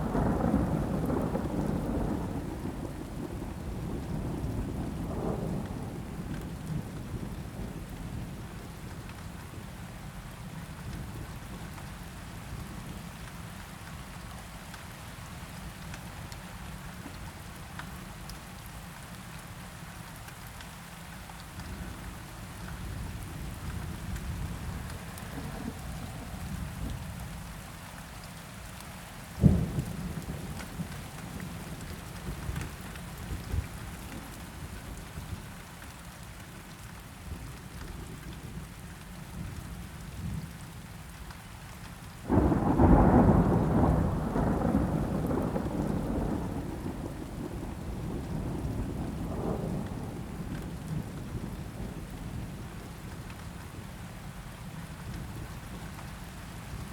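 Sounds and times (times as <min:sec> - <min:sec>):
steady rain: 0:00.0 - 0:56.9
thunder rumble: 0:23.1 - 0:27.3, 0:42.3 - 0:52.8
thunder clap: 0:42.3 - 0:50.2.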